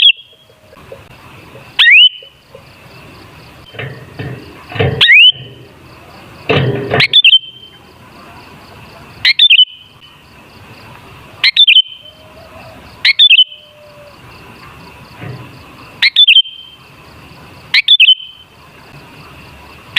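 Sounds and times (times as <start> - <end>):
bird chirping and whistling: 0.0 - 0.5, 1.8 - 2.3, 5.0 - 5.4, 7.0 - 7.8, 9.2 - 9.9, 11.4 - 12.3, 13.0 - 13.9, 16.0 - 16.8, 17.8 - 18.4.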